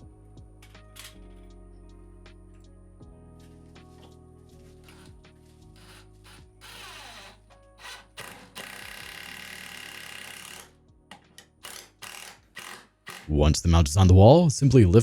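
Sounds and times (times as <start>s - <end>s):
background music: 0.0s - 15.0s
power drill driving bolts: 4.8s - 5.2s, 5.8s - 13.3s.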